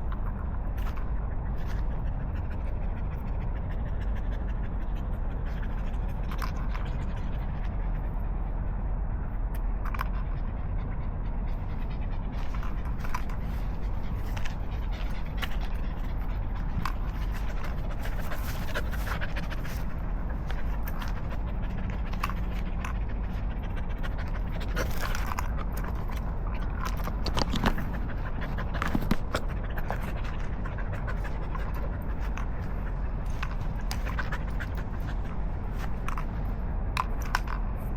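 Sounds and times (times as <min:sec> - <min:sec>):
dog panting: 0:00.0 - 0:37.7
light clicks and scrapes: 0:11.5 - 0:37.9.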